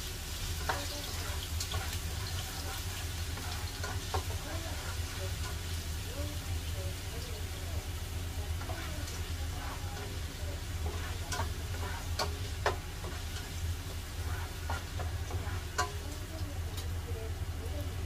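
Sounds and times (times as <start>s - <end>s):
frying in oil sizzling: 0.0s - 18.0s
utensil tapping pot: 0.6s - 5.6s, 8.6s - 16.4s.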